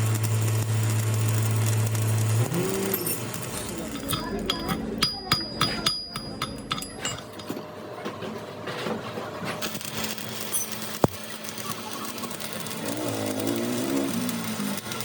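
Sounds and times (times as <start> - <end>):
scraping and clattering: 2.7 - 7.7
sharp clicks and knocks: 2.9 - 7.6.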